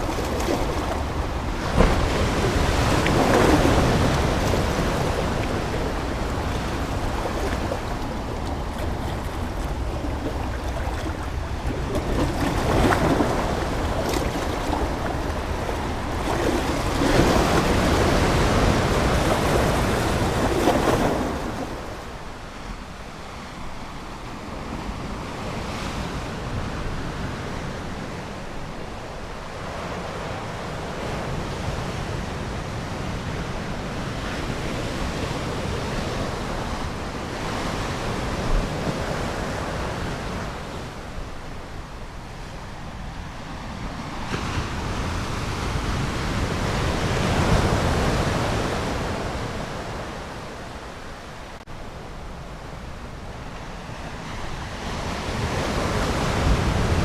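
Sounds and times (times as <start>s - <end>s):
ocean waves washing onto shore: 0.0s - 57.0s.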